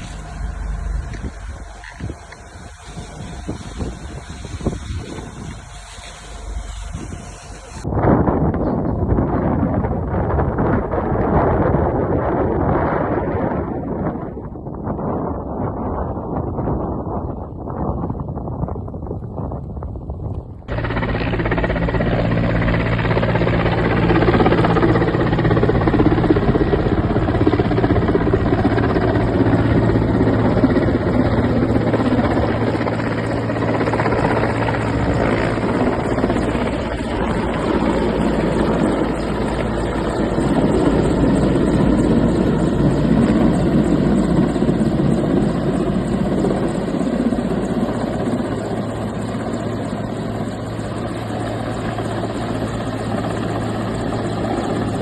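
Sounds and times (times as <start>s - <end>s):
loud rushing noise: 0.0s - 7.9s
low engine drone: 0.0s - 7.9s, 20.6s - 55.0s.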